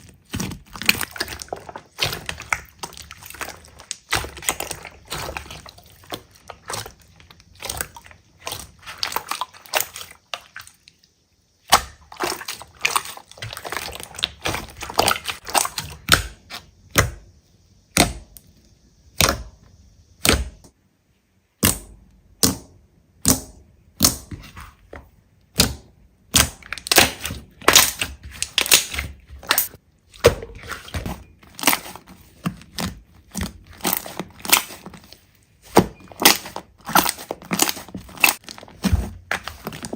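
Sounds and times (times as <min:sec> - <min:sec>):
slime crackling and popping: 0:26.3 - 0:29.8, 0:32.7 - 0:35.0, 0:36.1 - 0:39.9.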